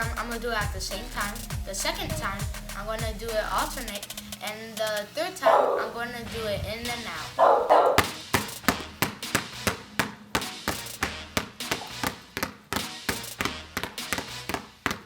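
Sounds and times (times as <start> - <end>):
basketballs bouncing on hard floor: 7.9 - 15.0.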